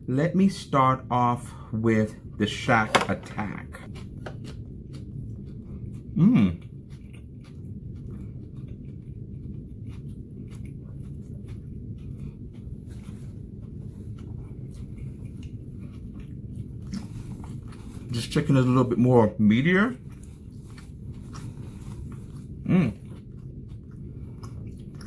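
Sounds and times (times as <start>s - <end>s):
steady low hum: 0.0s - 25.0s
person chewing food: 2.2s - 25.0s
person humming mm: 6.1s - 6.6s, 22.6s - 23.0s.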